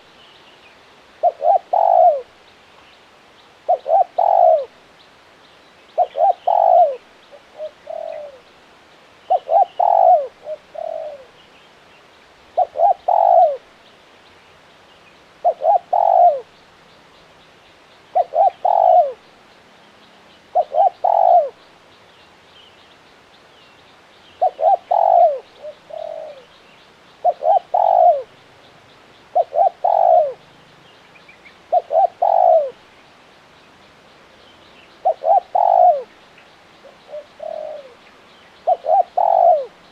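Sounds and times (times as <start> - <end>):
dove cooing: 1.2 - 2.4, 3.6 - 4.8, 6.0 - 8.5, 9.3 - 11.4, 12.5 - 13.7, 15.4 - 16.6, 18.1 - 19.3, 20.5 - 21.6, 24.4 - 26.6, 27.2 - 28.4, 29.3 - 30.5, 31.6 - 32.8, 35.0 - 36.2, 36.8 - 39.9.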